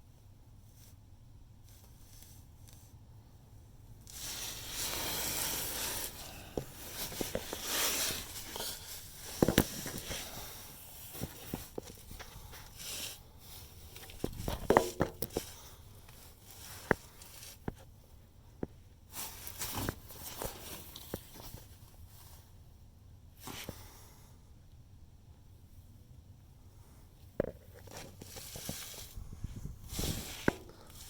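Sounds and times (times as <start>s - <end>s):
rustling handling noise: 4.0s - 18.0s, 19.1s - 22.6s, 27.3s - 31.0s.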